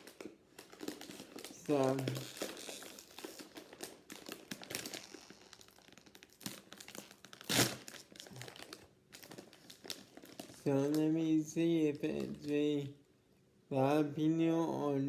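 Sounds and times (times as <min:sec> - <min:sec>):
snack bag crinkling: 0:00.0 - 0:12.6.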